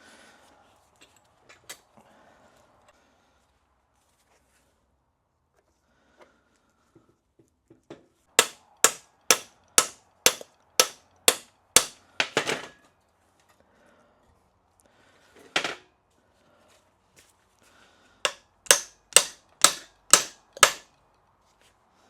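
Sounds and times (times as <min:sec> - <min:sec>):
hammer striking metal: 0:08.4 - 0:12.8, 0:18.3 - 0:20.9.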